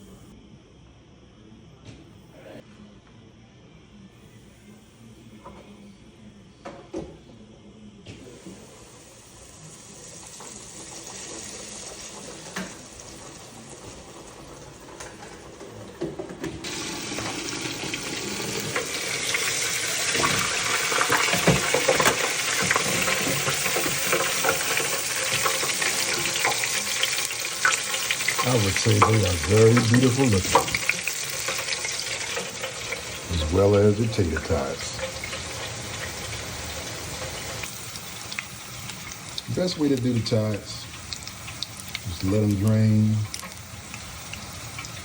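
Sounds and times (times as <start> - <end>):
food sizzling in hot oil: 8.3 - 15.8, 16.6 - 45.0.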